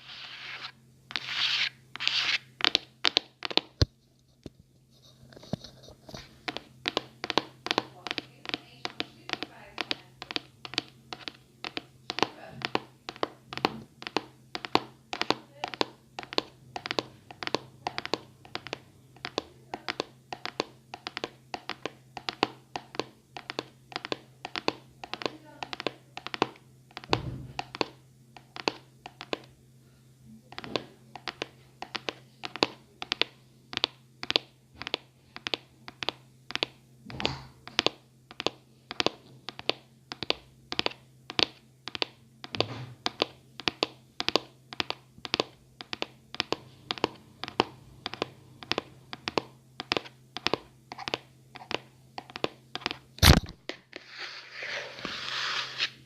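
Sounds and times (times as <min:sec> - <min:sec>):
scratching: 0:00.0 - 0:02.5
fingernail tapping on object: 0:06.4 - 0:29.5, 0:30.5 - 0:53.0.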